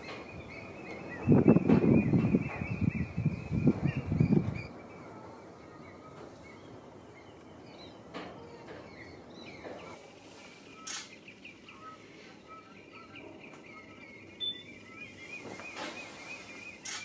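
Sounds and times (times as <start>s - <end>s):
birds chirping: 0.0s - 17.0s
background hiss: 9.2s - 17.0s
sharp clicks: 10.9s - 11.2s.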